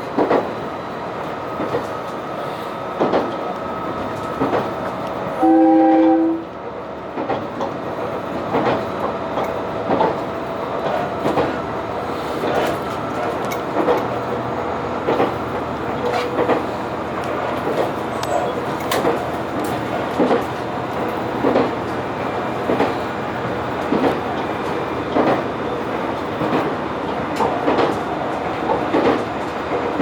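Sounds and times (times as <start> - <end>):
railcar running hum: 0.0 - 30.0
train horn blast: 5.4 - 6.5
wheels clicking over rail joints: 7.1 - 30.0.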